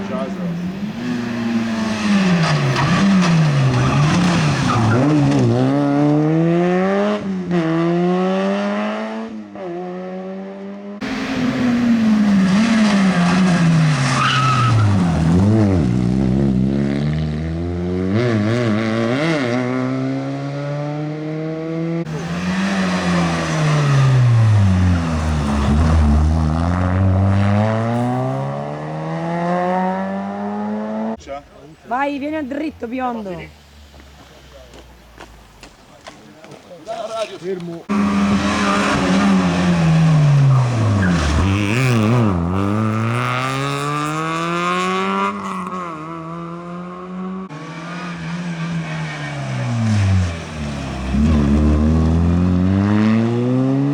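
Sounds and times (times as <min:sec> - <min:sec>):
rally car engines: 0:00.0 - 0:53.9
tyre squeal: 0:01.9 - 0:05.4, 0:12.5 - 0:15.4, 0:37.9 - 0:41.9.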